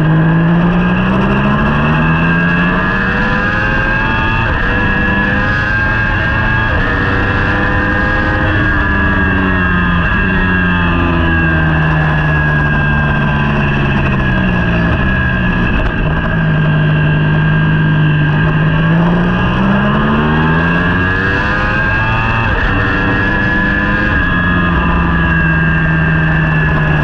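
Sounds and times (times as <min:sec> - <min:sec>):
racing motorcycle engine: 0:00.0 - 0:27.0
wind rush: 0:08.3 - 0:27.0.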